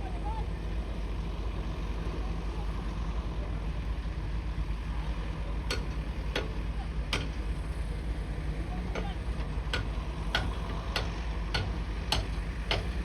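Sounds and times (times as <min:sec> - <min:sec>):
bulldozer engine rumbling: 0:00.0 - 0:13.0
sharp knocks: 0:09.8 - 0:13.0.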